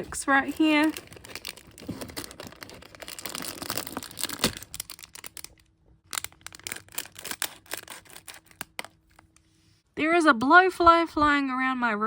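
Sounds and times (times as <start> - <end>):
plastic bag crinkling and tearing: 0.3 - 8.9.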